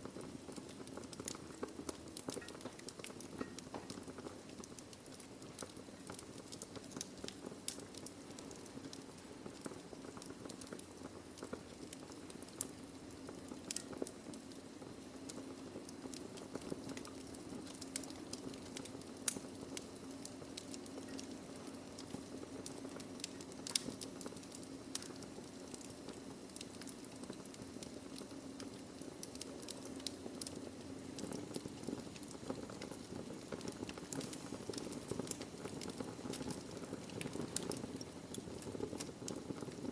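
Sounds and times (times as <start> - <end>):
logs crackling and popping: 0.0 - 39.9
low hiss of fire: 0.0 - 39.9.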